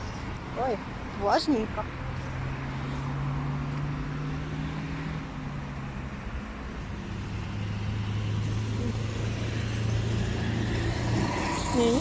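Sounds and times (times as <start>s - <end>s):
road traffic engine hum: 0.0s - 12.0s.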